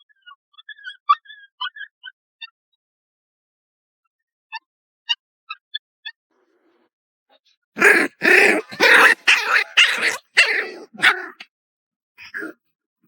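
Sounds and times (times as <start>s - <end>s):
puppy barking: 7.8s - 11.5s.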